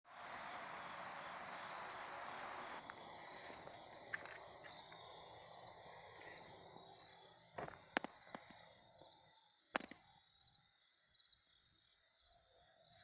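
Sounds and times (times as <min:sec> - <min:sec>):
steady hiss: 0:00.1 - 0:07.3
insects trilling: 0:00.1 - 0:13.0.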